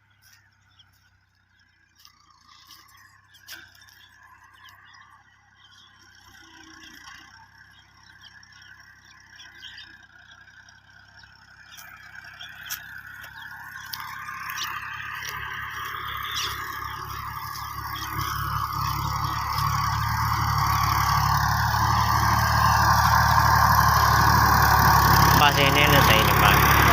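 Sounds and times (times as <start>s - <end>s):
tractor engine running: 0.0s - 26.9s.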